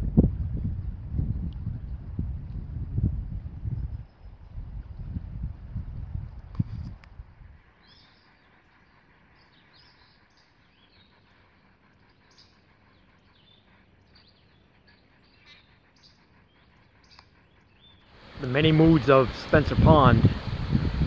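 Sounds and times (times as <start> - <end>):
songbirds chirping: 3.5 - 5.2, 6.3 - 20.1.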